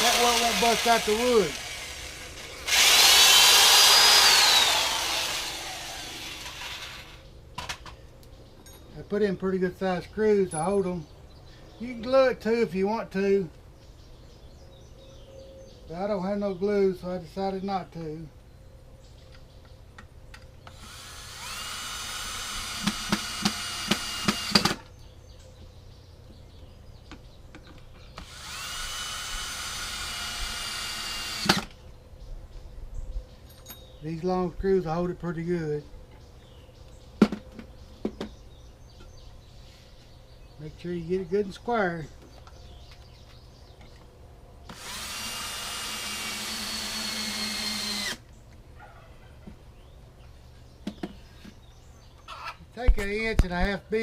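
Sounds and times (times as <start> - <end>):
power drill driving screws: 0.0 - 7.2, 20.7 - 24.9, 28.2 - 31.7, 44.7 - 48.2.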